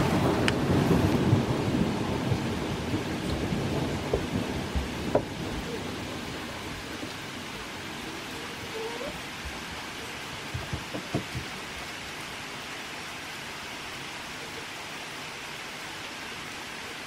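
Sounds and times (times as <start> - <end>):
thunder rumbling: 0.0 - 9.6
rain falling: 0.0 - 17.0.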